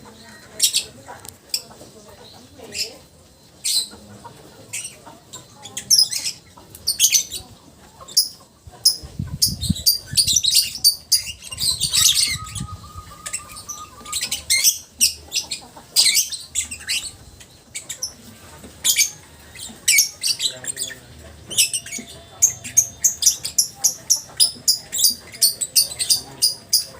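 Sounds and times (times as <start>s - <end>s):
lovebird chattering: 4.7s - 7.4s, 8.1s - 18.2s, 18.8s - 26.9s.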